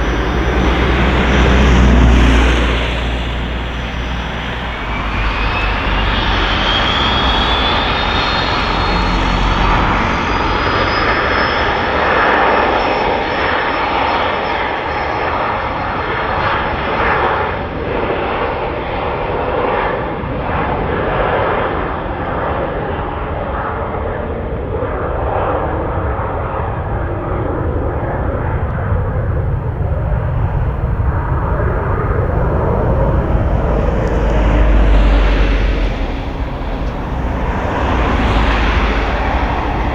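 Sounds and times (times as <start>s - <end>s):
thin engine whine: 0.0s - 13.3s, 26.7s - 39.9s
jet engines roaring: 0.0s - 15.2s, 25.0s - 39.9s.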